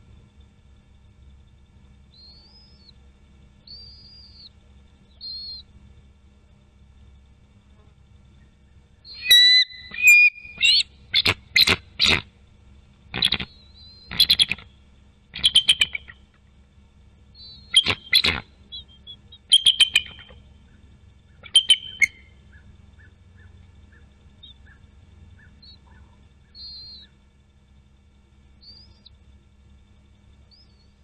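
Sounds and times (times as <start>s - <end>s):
eagle high chirping calls: 2.2s - 3.0s, 3.7s - 4.5s, 5.1s - 5.7s, 9.0s - 12.2s, 13.1s - 14.7s, 15.3s - 16.3s, 17.4s - 27.2s, 28.6s - 29.1s.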